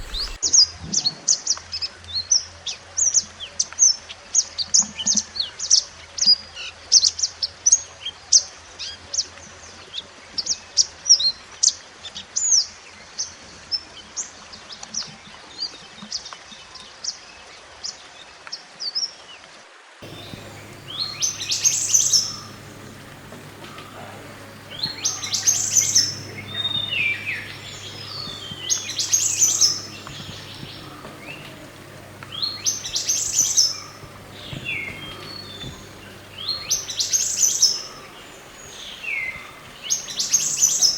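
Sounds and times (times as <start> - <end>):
birdsong descending phrases: 0.0 - 0.4, 20.0 - 40.9
high bird chirps: 0.0 - 0.4, 20.0 - 40.9
steady low hum: 0.0 - 0.4, 20.0 - 40.9.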